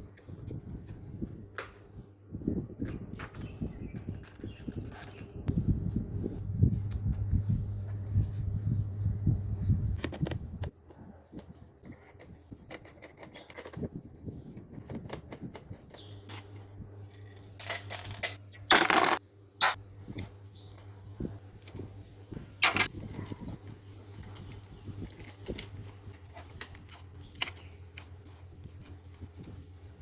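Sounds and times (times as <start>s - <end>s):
metal tools clicking and clattering: 17.2s - 19.8s.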